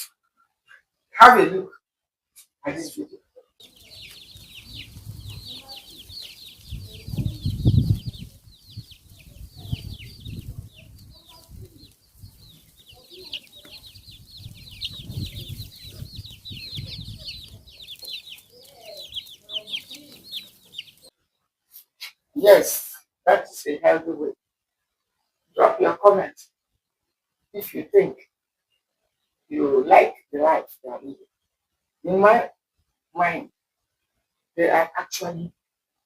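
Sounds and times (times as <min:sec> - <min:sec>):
chickens clucking: 0:02.7 - 0:22.2
rapid high-pitched chirping: 0:03.6 - 0:21.1.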